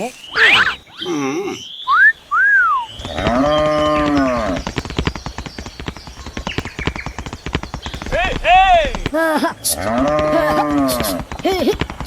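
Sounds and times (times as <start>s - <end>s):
rising and falling whistles: 0.1s - 3.8s
moo-like animal call: 2.8s - 4.6s, 9.6s - 11.2s
fast rattle of clicks: 3.0s - 12.0s.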